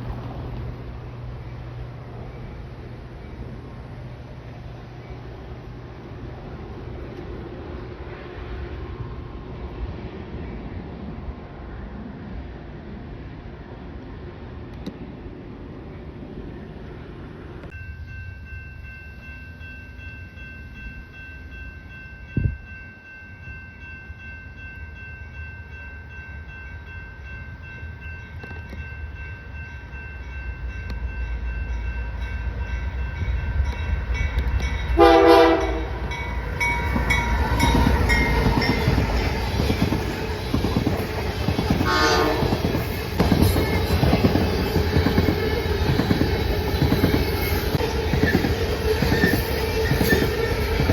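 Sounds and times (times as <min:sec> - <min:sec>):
railcars clattering: 0:00.0 - 0:50.9
train rumble: 0:00.0 - 0:50.9
locomotive horn blast: 0:34.9 - 0:36.2, 0:41.8 - 0:42.6.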